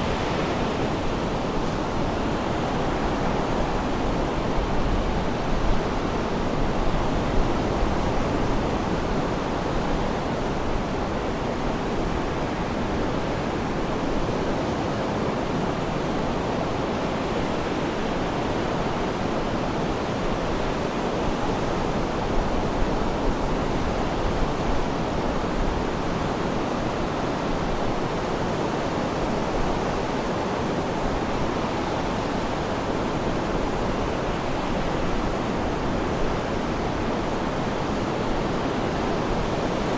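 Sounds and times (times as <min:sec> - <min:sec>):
sea waves washing: 0:00.0 - 0:03.4.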